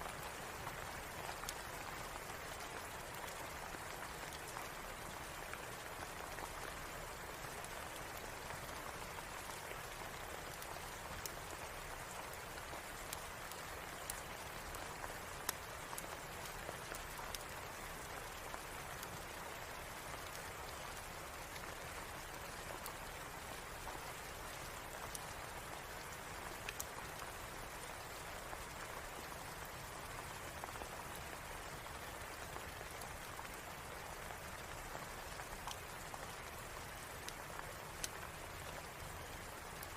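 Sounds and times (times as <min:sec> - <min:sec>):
rain falling: 0:00.0 - 0:39.9
sharp ticks and pops: 0:26.6 - 0:27.3.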